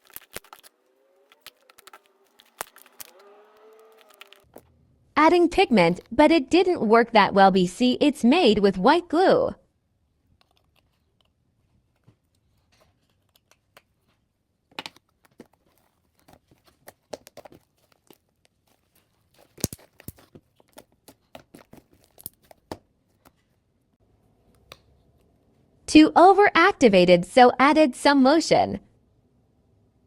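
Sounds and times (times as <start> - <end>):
slime crackling and tearing: 0.0 - 4.6, 14.9 - 22.5.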